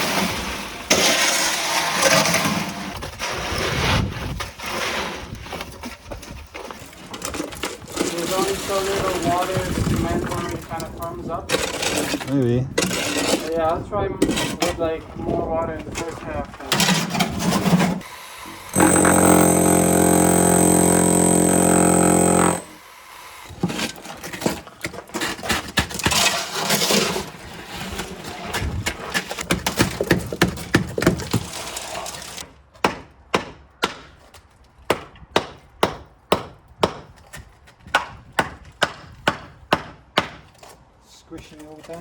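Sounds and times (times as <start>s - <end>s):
wet concrete shovelled and scraped: 0.0s - 14.8s, 15.8s - 18.0s, 23.5s - 29.9s, 31.1s - 32.4s
loud droning tone: 18.0s - 23.5s.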